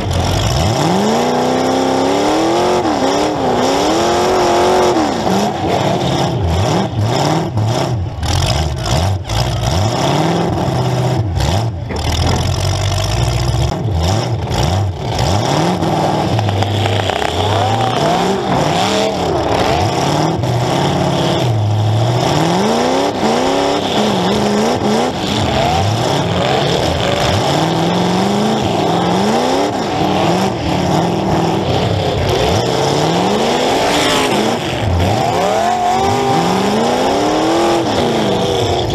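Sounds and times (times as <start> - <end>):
car engine revving: 0.0 - 38.9.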